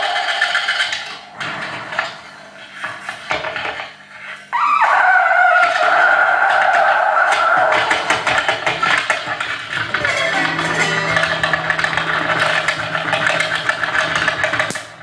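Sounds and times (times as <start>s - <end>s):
scratchy clattering noise music: 0.0s - 15.0s
steady low hum: 9.3s - 15.0s.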